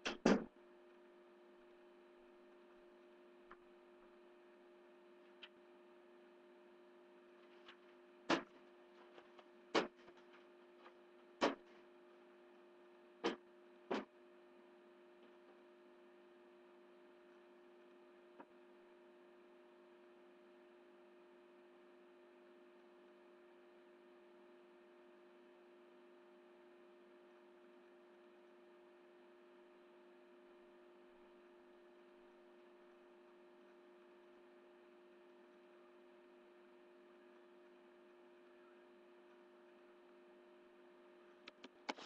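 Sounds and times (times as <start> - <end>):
steady electrical hum: 0.0 - 42.0
sharp knocks: 8.3 - 8.6, 9.7 - 10.1, 11.4 - 11.7.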